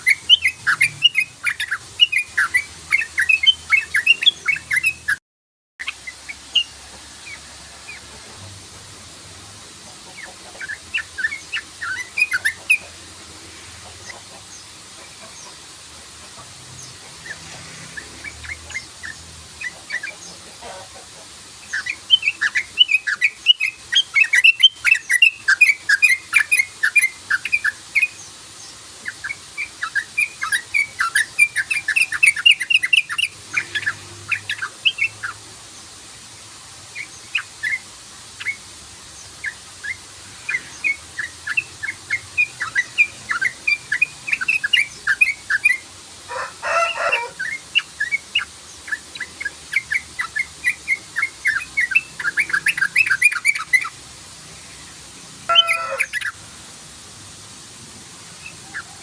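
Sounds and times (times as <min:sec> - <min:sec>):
bird singing fast chirping notes: 0:00.0 - 0:05.2, 0:10.1 - 0:13.0, 0:16.7 - 0:20.5, 0:21.6 - 0:35.5, 0:36.9 - 0:45.9, 0:46.9 - 0:56.4.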